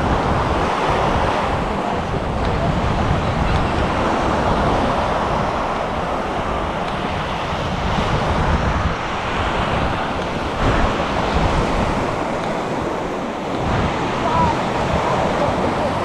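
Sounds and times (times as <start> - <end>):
surf washing on beach: 0.0 - 16.0
wind rumbling on microphone: 0.0 - 16.0.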